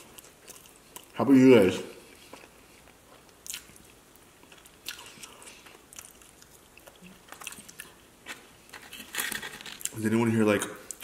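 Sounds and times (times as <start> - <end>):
person chewing chicken wing: 2.1 - 8.4.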